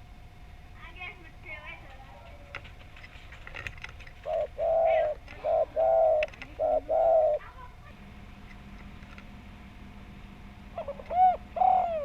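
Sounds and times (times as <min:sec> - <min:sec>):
dove cooing: 0:01.8 - 0:08.0, 0:10.6 - 0:12.0.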